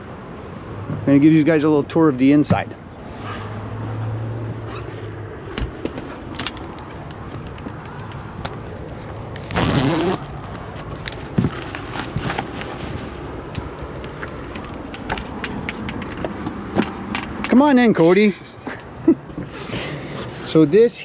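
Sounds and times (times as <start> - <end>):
footsteps on a boat: 3.8 - 9.5.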